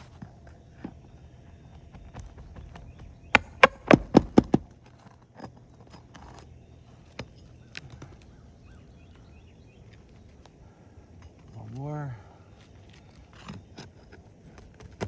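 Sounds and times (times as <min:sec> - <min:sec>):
hand tool knocking on roof: 0:02.3 - 0:04.6
faint clicks and scrapes: 0:12.5 - 0:15.0.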